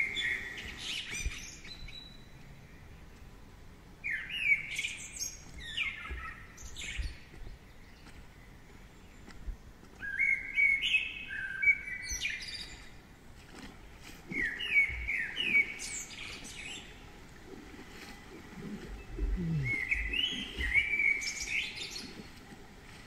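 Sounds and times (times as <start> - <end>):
songbird whistling: 19.2 - 22.0.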